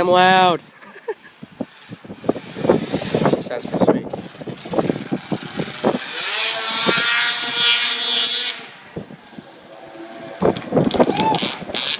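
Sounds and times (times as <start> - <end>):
snowmobile engine revving: 4.2 - 11.9.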